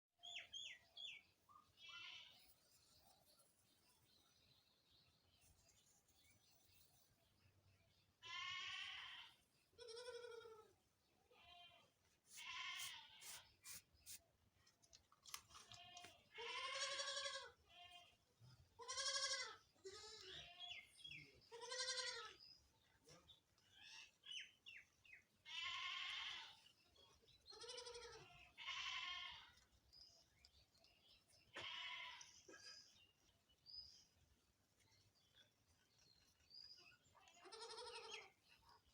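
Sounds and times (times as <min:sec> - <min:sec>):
wavering bleat-like animal calls: 0:01.7 - 0:02.5, 0:08.2 - 0:13.4, 0:15.7 - 0:18.2, 0:18.8 - 0:22.4, 0:25.4 - 0:26.7, 0:27.5 - 0:29.6, 0:31.5 - 0:33.0, 0:37.1 - 0:38.4.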